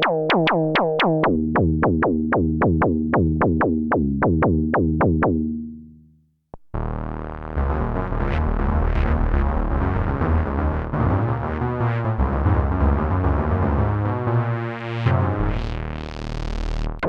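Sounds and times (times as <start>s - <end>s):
synthesizer plucked notes: 0.0s - 17.0s
click: 6.5s - 6.7s
low synth bass: 6.7s - 17.0s
buzzy synth patch: 6.8s - 17.0s.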